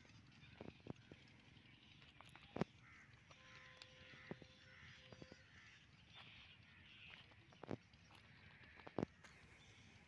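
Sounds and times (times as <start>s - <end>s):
faint bird calls: 0.1s - 10.0s.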